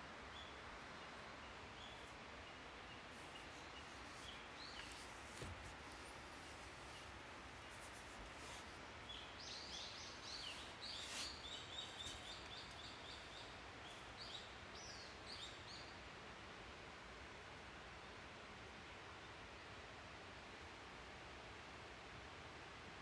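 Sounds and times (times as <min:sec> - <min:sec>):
faint background hiss: 0:00.0 - 0:23.0
small bird chirping: 0:02.9 - 0:15.9.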